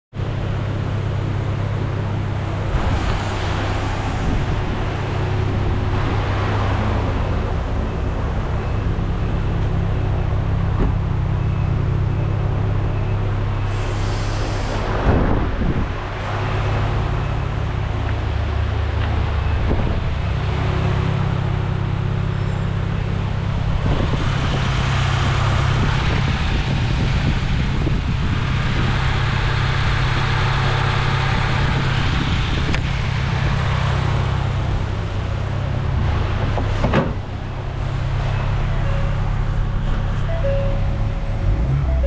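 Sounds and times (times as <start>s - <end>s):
car engine idling: 0.1s - 14.7s, 16.8s - 42.0s
hiss: 13.7s - 15.0s.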